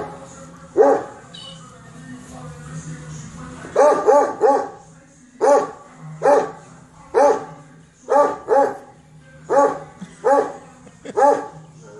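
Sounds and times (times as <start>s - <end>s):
dog barking: 0.8s - 1.1s, 3.8s - 4.8s, 5.4s - 8.9s, 9.5s - 10.6s, 11.2s - 11.9s.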